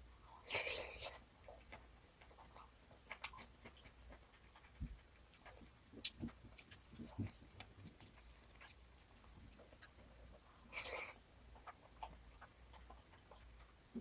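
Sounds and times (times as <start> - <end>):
chewing and utensil taps: 1.5 - 10.4.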